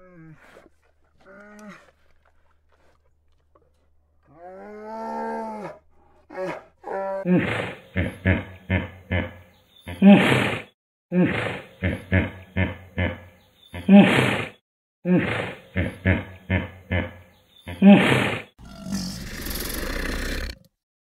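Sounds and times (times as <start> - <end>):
hippopotamus call and grunts: 0.0 - 20.7
crocodile hissing: 18.0 - 20.7.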